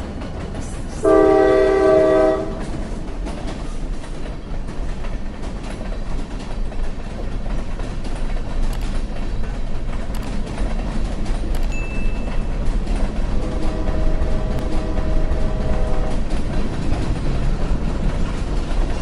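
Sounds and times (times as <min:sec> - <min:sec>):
train rumble and rail noise: 0:00.0 - 0:19.0
train horn blast: 0:01.0 - 0:02.7, 0:13.3 - 0:16.2.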